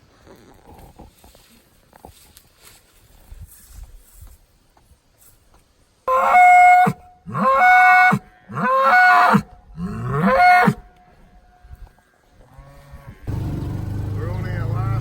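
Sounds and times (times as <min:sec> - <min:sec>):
bull bellowing: 0:06.1 - 0:10.8.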